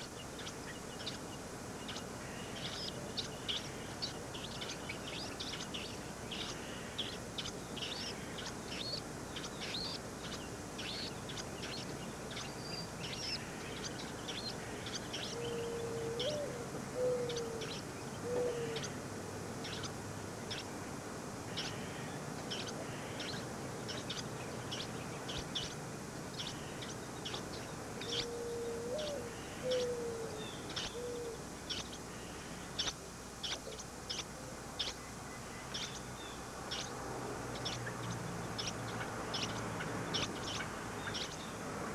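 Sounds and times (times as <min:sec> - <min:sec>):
birds chirping: 0:00.0 - 0:41.9
low cooing bird call: 0:10.8 - 0:19.0, 0:26.4 - 0:35.1.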